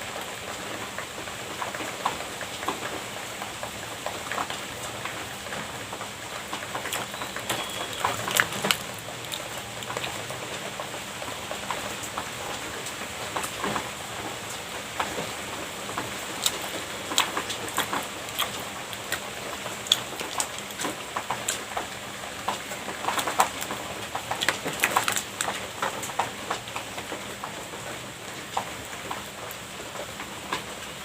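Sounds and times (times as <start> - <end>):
person eating pastry: 6.5 - 11.8, 14.9 - 26.6.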